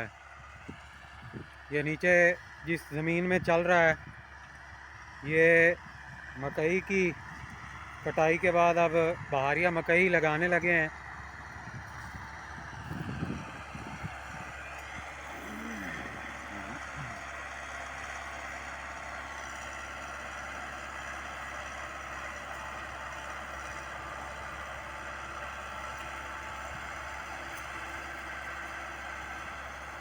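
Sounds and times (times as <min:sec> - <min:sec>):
tractor diesel engine running: 0:00.0 - 0:30.0
disc harrow through soil: 0:06.3 - 0:30.0.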